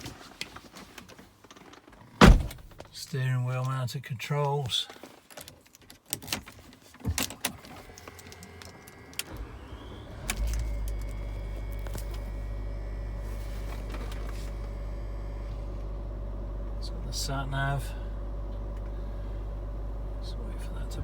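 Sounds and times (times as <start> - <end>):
diesel engine starting and idling: 7.4 - 21.0.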